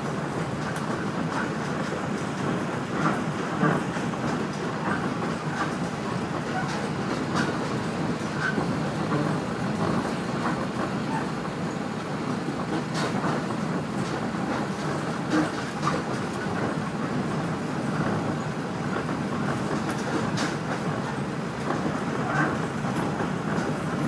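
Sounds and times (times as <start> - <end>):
wheels rumbling on rail: 0.0 - 24.0
clicks over rail joints: 12.6 - 17.0, 19.0 - 24.0.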